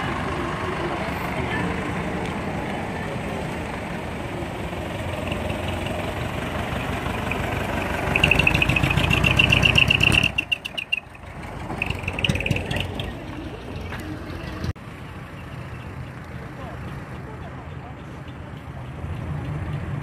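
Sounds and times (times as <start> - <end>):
large truck engine revving: 3.2 - 14.8.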